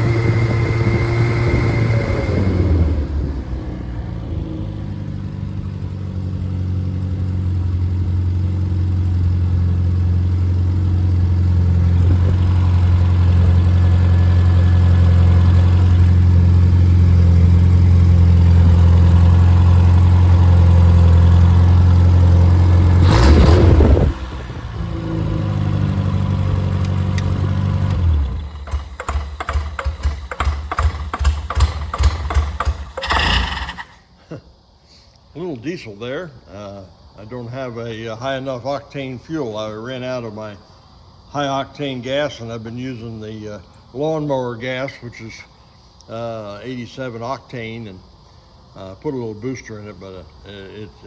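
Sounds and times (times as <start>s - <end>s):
car engine running: 0.0s - 34.0s
loud engine clatter: 0.0s - 34.0s.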